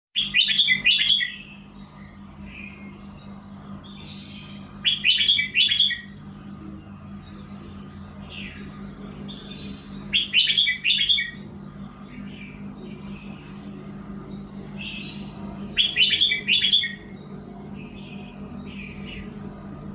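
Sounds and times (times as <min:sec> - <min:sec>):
bird song phrases: 0:00.2 - 0:19.9
steady low hum: 0:00.2 - 0:19.9.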